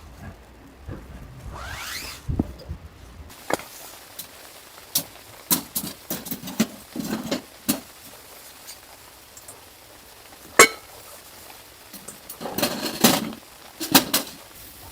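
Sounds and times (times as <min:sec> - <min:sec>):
rising swish: 0:00.9 - 0:02.8.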